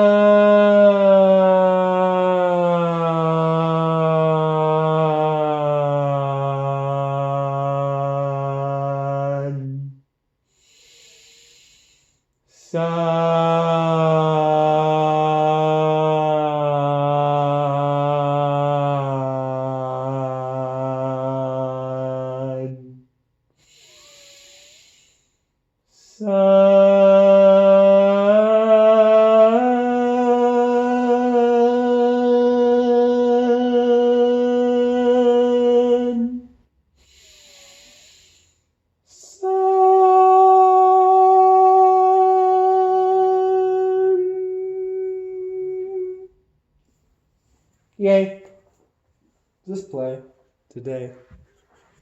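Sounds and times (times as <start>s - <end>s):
audible in-breath: 10.4s - 12.7s, 23.5s - 26.1s, 36.9s - 39.0s
person chanting sustained notes: 39.2s - 46.3s.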